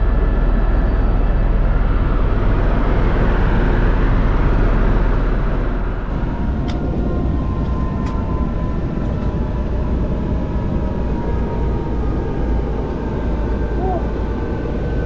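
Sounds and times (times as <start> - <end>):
helicopter engine and rotor rumble: 0.0 - 15.0.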